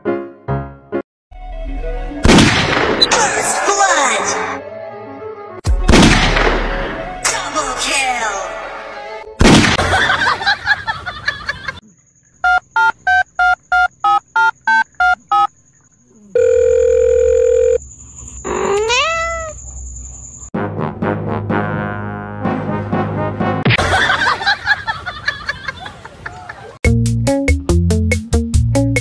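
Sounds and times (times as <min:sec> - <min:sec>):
music: 0:00.0 - 0:02.3, 0:03.8 - 0:09.4, 0:20.6 - 0:24.0, 0:26.8 - 0:29.0
electronic phone-like beeps: 0:12.4 - 0:15.5.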